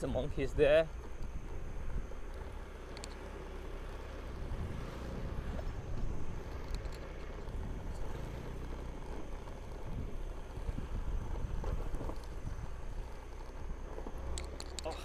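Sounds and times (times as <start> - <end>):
road rumble: 0.0 - 15.0
scooter engine hum: 0.0 - 15.0.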